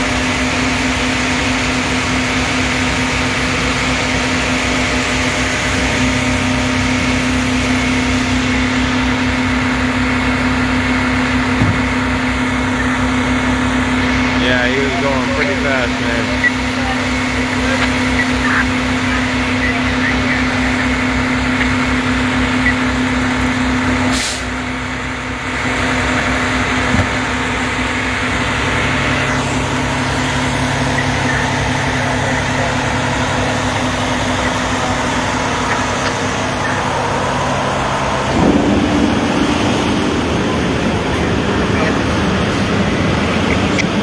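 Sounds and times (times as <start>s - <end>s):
truck diesel engine running: 0.0s - 44.0s
air hiss: 24.1s - 24.5s.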